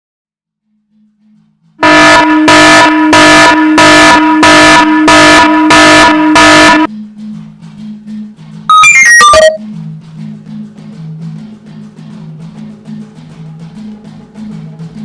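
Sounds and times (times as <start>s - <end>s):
harsh electronic buzzer blasts: 1.8s - 6.9s, 8.7s - 9.6s.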